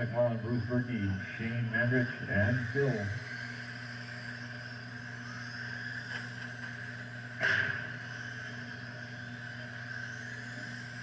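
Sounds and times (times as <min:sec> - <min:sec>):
constant low hum: 0:00.0 - 0:11.0
electric motors whining: 0:00.0 - 0:11.0
sharp knock: 0:07.4 - 0:07.9.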